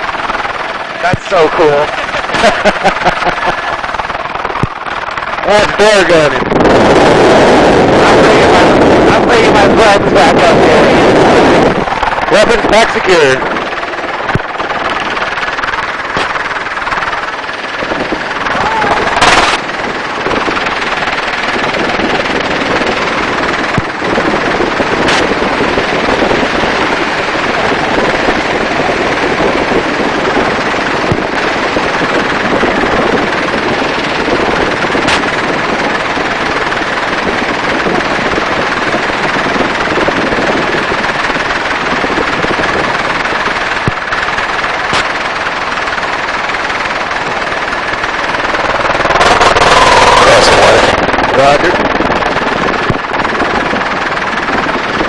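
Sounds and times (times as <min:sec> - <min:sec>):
helicopter rotor and engine noise: 0:00.0 - 0:55.0
sharp cracks: 0:11.7 - 0:55.0.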